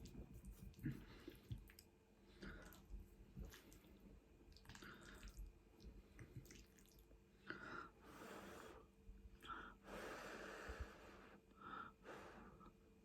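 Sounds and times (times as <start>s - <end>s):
person chewing food: 0.0s - 7.0s.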